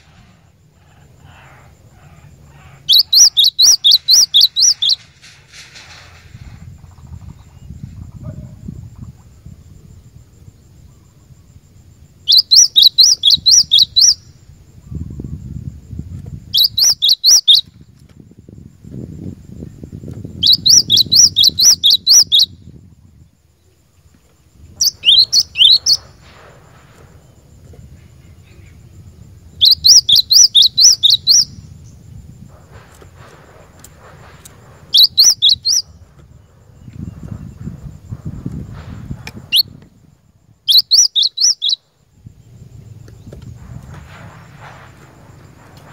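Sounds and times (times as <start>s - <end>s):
bird singing high notes: 2.8s - 5.0s, 12.3s - 14.2s, 20.4s - 22.5s, 24.8s - 26.1s, 29.6s - 31.6s.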